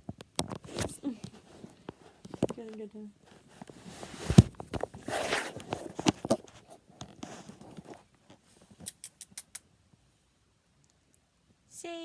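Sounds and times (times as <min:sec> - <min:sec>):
handling rustling and taps: 0:00.0 - 0:08.8
sharp clicks: 0:08.8 - 0:09.6.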